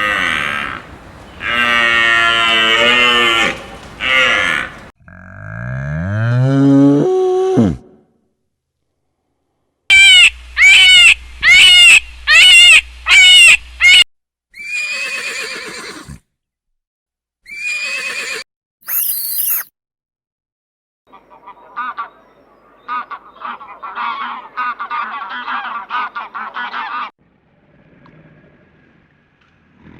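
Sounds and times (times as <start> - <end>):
animal calls: 0.0 - 4.9.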